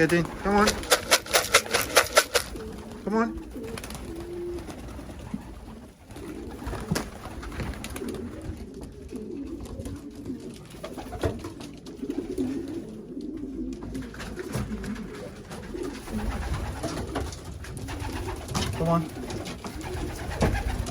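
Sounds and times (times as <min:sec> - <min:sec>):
pigeons cooing: 0:00.0 - 0:20.9
sharp knocks or clicks: 0:00.7 - 0:02.5.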